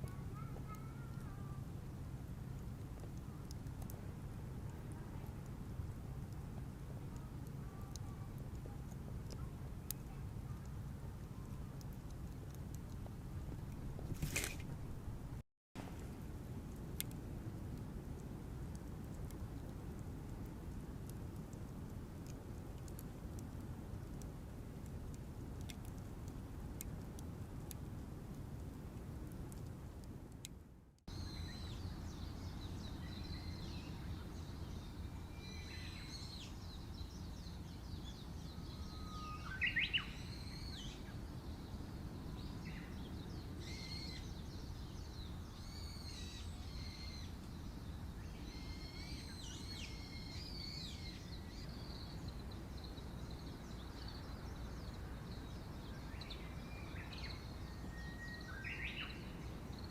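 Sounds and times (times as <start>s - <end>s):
faint ticks: 0.0s - 5.6s, 15.9s - 30.6s
low outdoor rumble: 0.0s - 59.9s.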